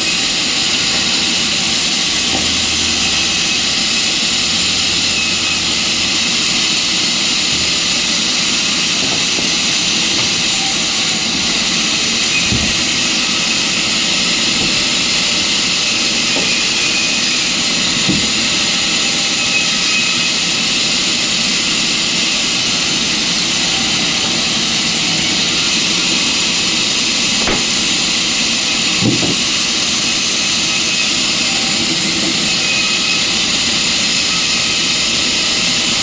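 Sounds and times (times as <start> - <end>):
sawmill machinery whining: 0.0 - 36.0
brief knocks: 27.4 - 28.1.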